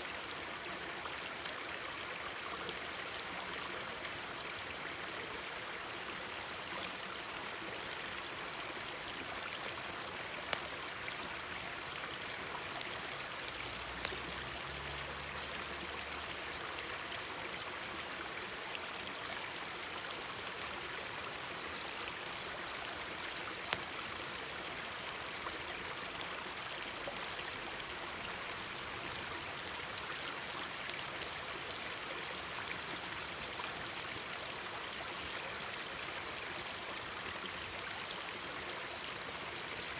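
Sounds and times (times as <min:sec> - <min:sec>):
stream babbling: 0:00.0 - 0:39.9
campfire popping: 0:09.1 - 0:14.3, 0:27.3 - 0:33.2.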